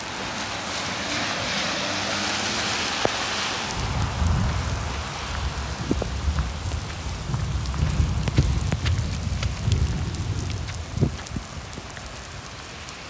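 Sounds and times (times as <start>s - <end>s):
heavy rain on pavement: 0.0s - 13.0s
low rumble: 3.7s - 11.6s.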